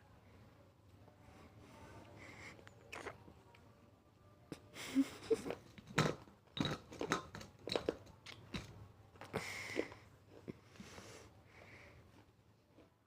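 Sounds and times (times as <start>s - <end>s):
wet chewing and mouth smacks: 2.6s - 3.2s.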